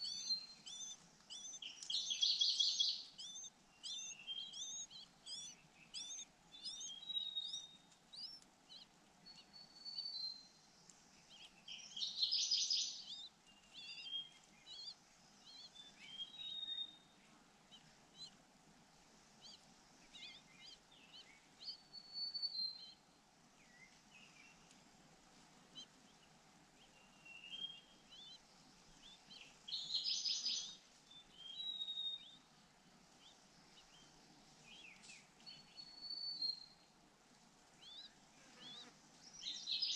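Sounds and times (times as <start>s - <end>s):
birds chirping: 0.0s - 18.4s, 19.4s - 24.8s, 25.8s - 32.5s, 33.2s - 36.9s, 37.8s - 39.9s.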